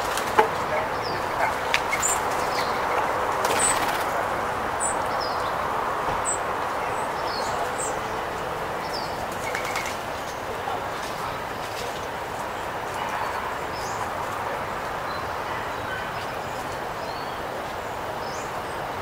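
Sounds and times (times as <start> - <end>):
bird wingbeats: 0.0 - 4.3, 9.0 - 10.4
small birds chirping: 0.0 - 19.0.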